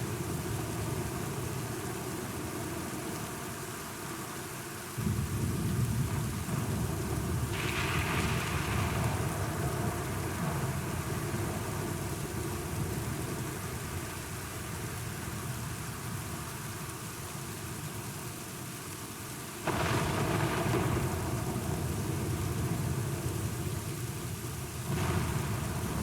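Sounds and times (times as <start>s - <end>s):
heavy rain: 0.0s - 26.0s
low thunder rumbling: 19.7s - 23.9s, 24.8s - 26.0s.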